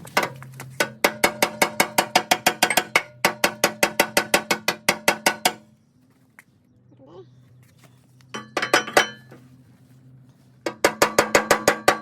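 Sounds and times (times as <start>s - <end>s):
hammer striking steel: 0.8s - 5.6s, 10.7s - 12.0s.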